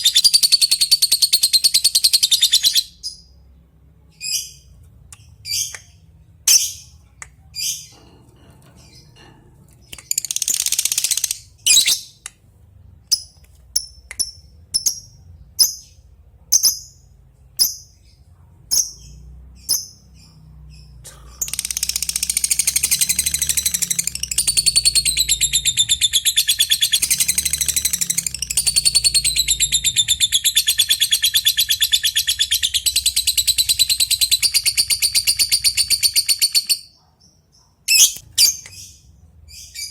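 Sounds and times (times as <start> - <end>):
sharp bird chirps: 13.1 - 39.9
rapid bird chattering trill: 21.2 - 36.8.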